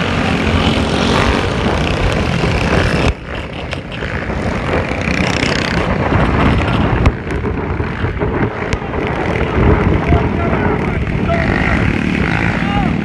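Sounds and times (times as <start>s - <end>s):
motorcycle running: 0.0s - 13.0s
wind noise on microphone: 0.0s - 13.0s.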